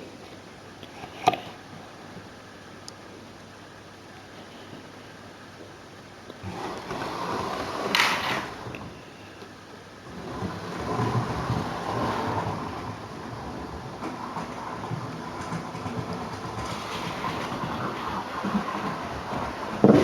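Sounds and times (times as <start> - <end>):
model train rumbling on track: 6.4 - 8.8, 10.0 - 20.0.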